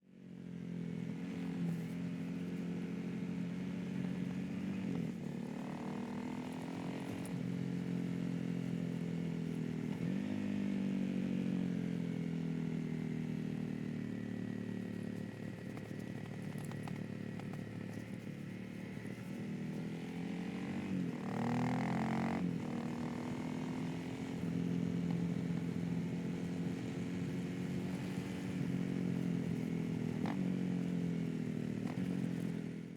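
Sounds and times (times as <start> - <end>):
motorcycle engine revving: 14.1 - 32.6.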